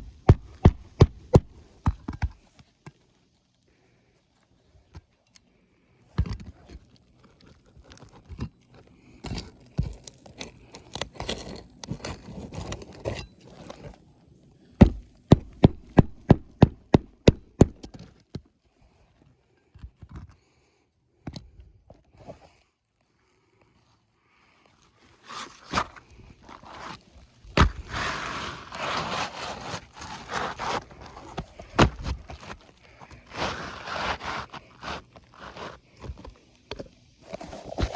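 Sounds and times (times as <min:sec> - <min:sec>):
sharp hammer strikes: 0:00.0 - 0:01.6, 0:14.8 - 0:17.9
scraping and knocking of shingles: 0:00.0 - 0:02.3, 0:14.8 - 0:18.0, 0:25.3 - 0:36.3.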